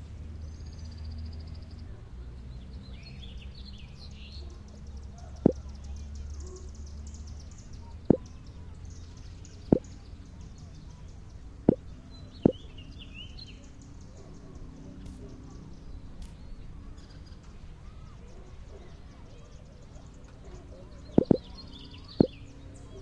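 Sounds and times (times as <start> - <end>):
faint bird chirps: 20.5 - 23.0.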